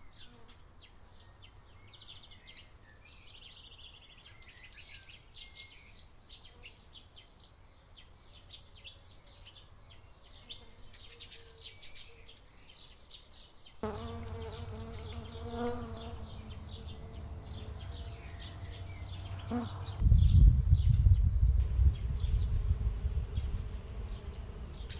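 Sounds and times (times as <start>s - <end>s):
small birds twittering: 0.0s - 24.9s
steady insect buzz: 13.8s - 24.9s
low rumble: 16.0s - 24.9s.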